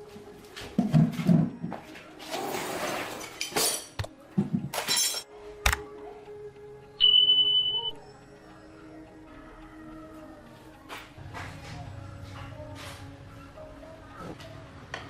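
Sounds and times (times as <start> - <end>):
metal engine parts clinking: 4.7 - 5.3.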